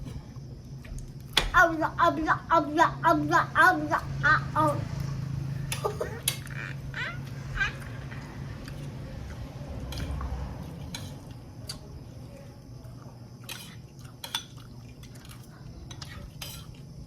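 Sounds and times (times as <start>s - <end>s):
utensils clinking on plates: 10.8s - 11.3s, 13.4s - 16.8s.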